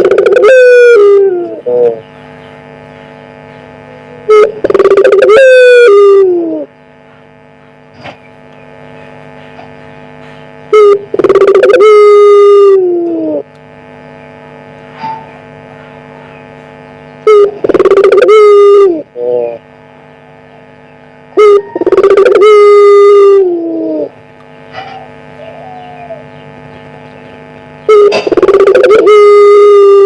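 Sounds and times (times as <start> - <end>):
dove cooing: 0.0 - 2.1, 4.0 - 6.7, 10.7 - 13.5, 17.3 - 19.6, 21.3 - 26.5, 27.9 - 30.0
electrical hum: 0.0 - 30.0.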